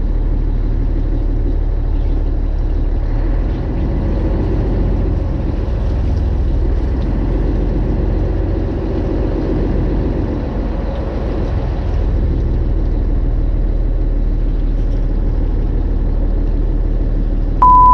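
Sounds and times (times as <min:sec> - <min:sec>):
boat engine droning: 0:00.0 - 0:17.9.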